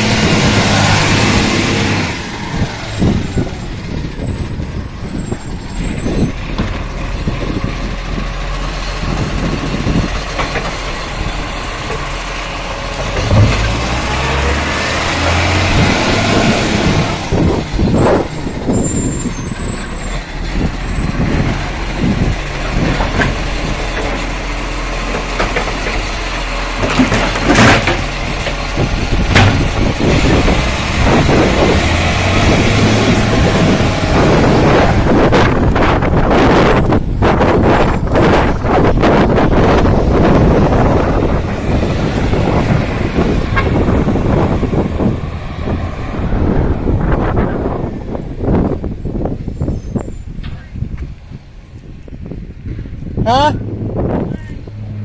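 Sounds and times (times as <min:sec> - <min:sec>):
truck engine rumble: 0:00.0 - 0:55.0
high squeal: 0:02.4 - 0:06.8, 0:17.9 - 0:20.2, 0:48.5 - 0:50.4
sharp knocks: 0:29.3 - 0:29.7.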